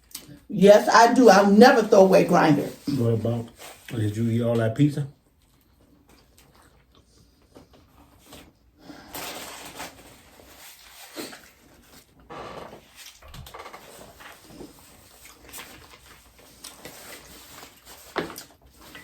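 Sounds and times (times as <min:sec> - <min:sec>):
person eating a sandwich: 0:05.2 - 0:12.2, 0:12.8 - 0:19.0.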